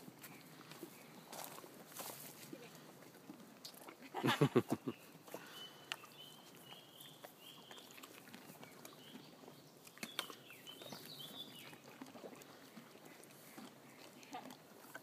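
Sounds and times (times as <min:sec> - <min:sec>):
small birds chirping: 0:04.4 - 0:14.4.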